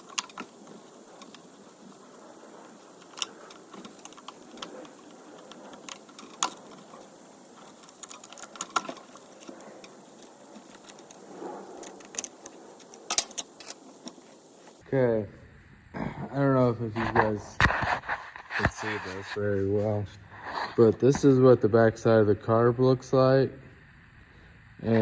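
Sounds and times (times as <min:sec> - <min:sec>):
hand tools and plastic parts clicking: 0:00.0 - 0:14.8.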